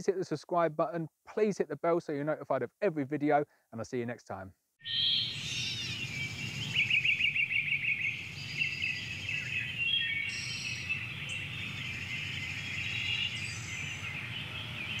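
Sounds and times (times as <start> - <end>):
birds chirping and trilling: 4.8 - 15.0.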